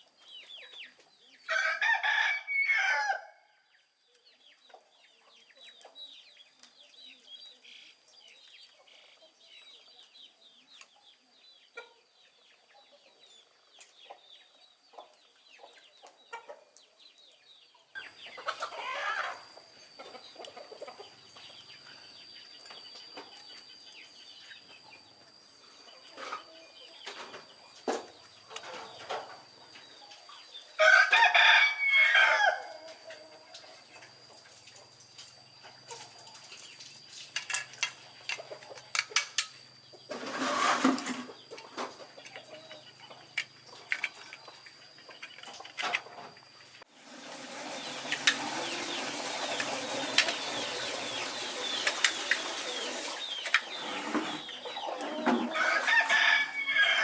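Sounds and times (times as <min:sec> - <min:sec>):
rooster crowing: 0:01.5 - 0:03.6, 0:30.8 - 0:33.0, 0:54.6 - 0:57.0
chickens clucking: 0:04.5 - 0:07.0, 0:07.6 - 0:57.0.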